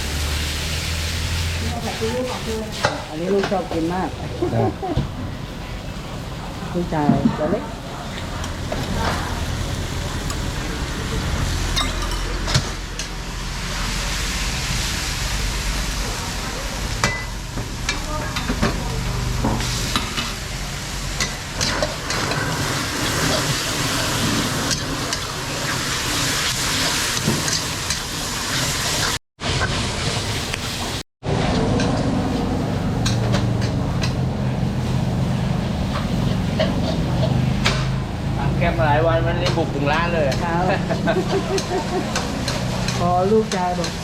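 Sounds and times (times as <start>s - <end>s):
noodles sizzling in a wok: 0.0s - 4.5s, 7.7s - 31.5s, 39.6s - 44.0s.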